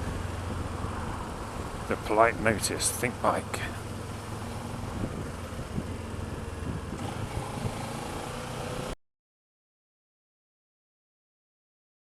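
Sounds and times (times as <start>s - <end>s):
motorcycle engine running: 0.0s - 8.6s
wind and road noise: 0.0s - 9.0s.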